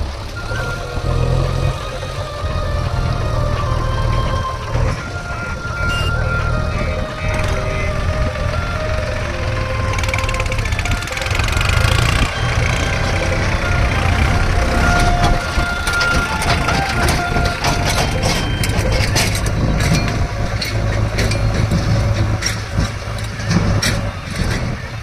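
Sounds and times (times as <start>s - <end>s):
heavy diesel engine running: 0.0s - 25.0s
knocks and clatter: 9.6s - 25.0s.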